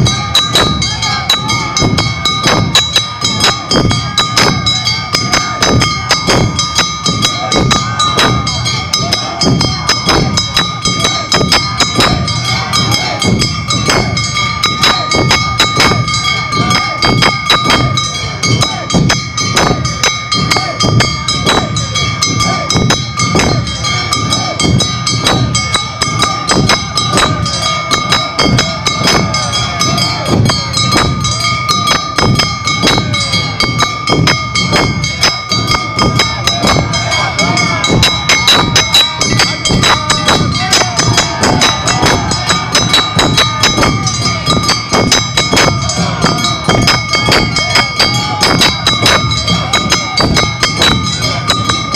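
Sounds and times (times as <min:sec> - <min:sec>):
drums beating fast: 0:00.0 - 0:51.9
high ringing bell tones: 0:00.0 - 0:51.9.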